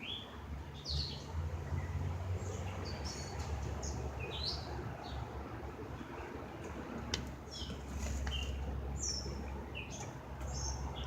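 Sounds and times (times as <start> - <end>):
birds chirping: 0.0 - 5.3, 7.4 - 11.0.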